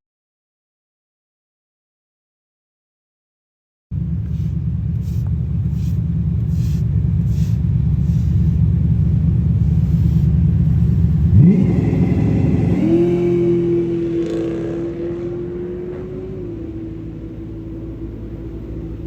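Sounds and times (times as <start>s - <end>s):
drag car engine revving: 4.0s - 19.0s.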